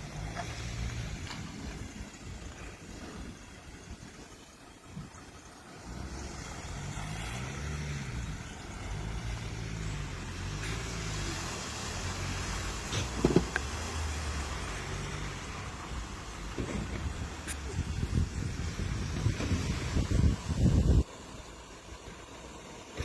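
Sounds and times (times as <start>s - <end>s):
truck engine revving: 5.5s - 21.0s.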